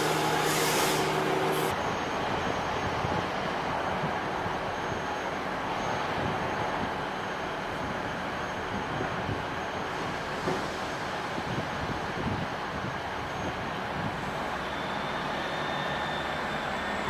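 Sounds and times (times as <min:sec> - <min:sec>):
diesel train rumbling: 0:00.0 - 0:17.0.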